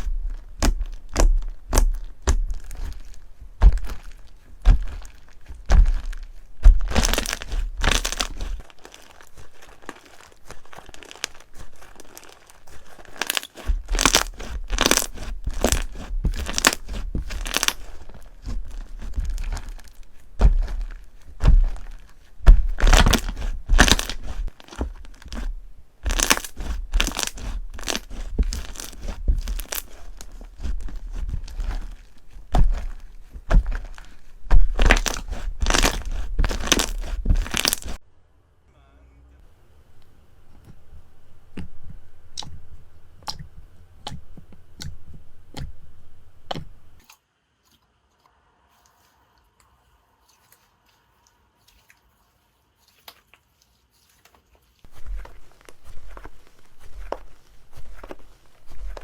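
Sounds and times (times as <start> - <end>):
dull handling thumps: 0.0 - 8.7, 13.6 - 38.0
slime crackling and popping: 0.0 - 38.0, 50.2 - 59.0.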